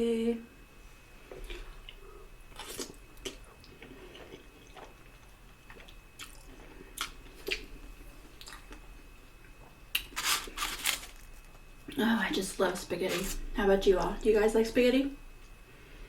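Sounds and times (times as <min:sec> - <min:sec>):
chewing with wet mouth smacks: 0:01.4 - 0:07.7, 0:08.3 - 0:08.8.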